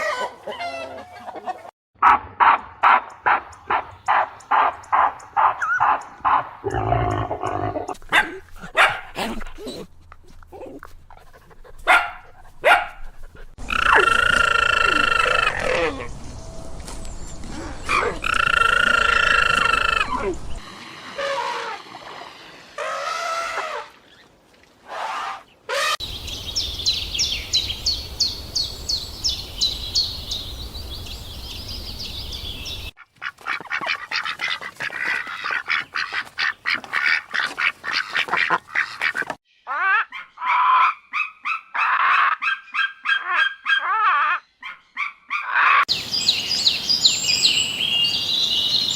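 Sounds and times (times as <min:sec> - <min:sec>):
rapid chattering calls: 0:13.6 - 0:15.6, 0:18.2 - 0:20.2
animal and bird calls: 0:13.6 - 0:16.6, 0:17.3 - 0:24.3.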